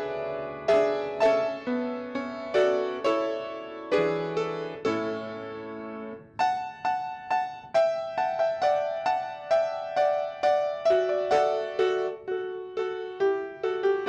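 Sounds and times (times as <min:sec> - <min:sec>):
solo piano playing: 0:00.0 - 0:14.0.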